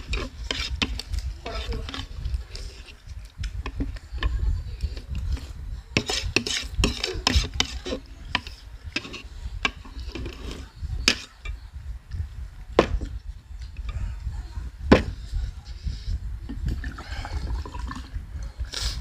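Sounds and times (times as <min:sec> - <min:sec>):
metal utensils clinking on bowl: 0:06.0 - 0:11.6.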